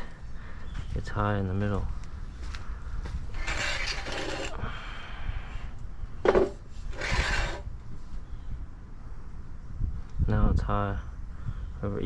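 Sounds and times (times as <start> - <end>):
level scraping on wooden beam: 3.3 - 4.6, 6.3 - 7.7.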